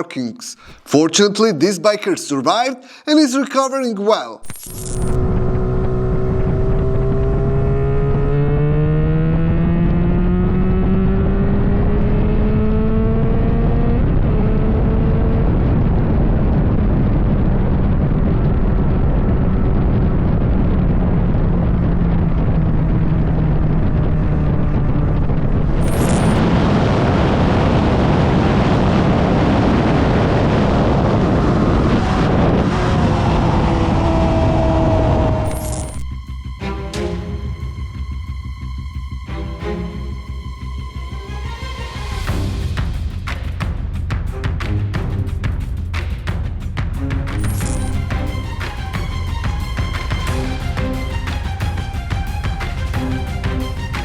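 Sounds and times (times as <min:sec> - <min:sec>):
motorcycle engine accelerating: 0:04.6 - 0:15.8, 0:20.4 - 0:36.2
loud rushing noise: 0:25.6 - 0:36.3, 0:47.0 - 0:54.0.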